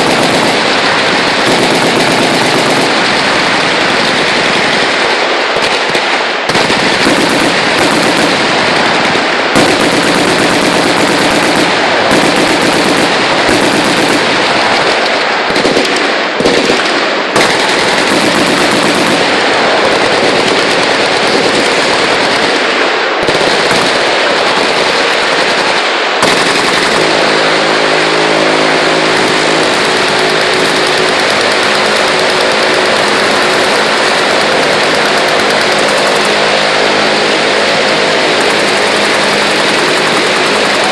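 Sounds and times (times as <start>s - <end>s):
machine-gun fire: 0.0s - 40.9s
steady droning hum: 26.6s - 40.9s.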